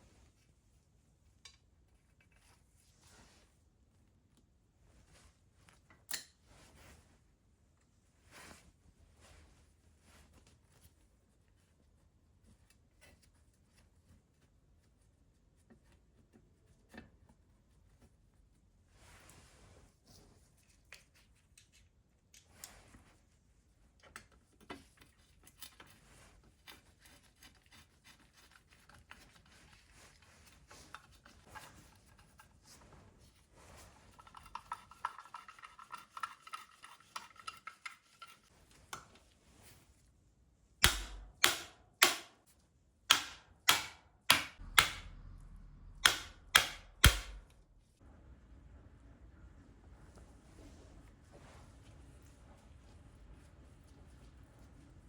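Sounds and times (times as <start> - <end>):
tools clicking and rubbing on parts: 34.1 - 39.2, 40.8 - 47.6
sharp knocks: 43.1 - 47.5.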